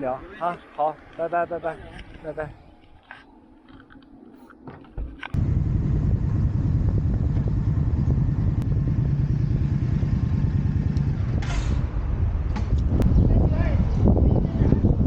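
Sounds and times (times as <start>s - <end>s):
motorcycle engine rumbling: 5.4s - 14.8s.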